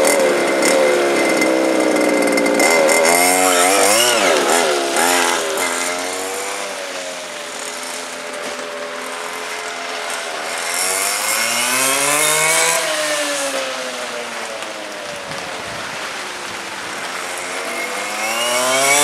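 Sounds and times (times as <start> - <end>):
small engine race cars whining: 0.0 - 19.0.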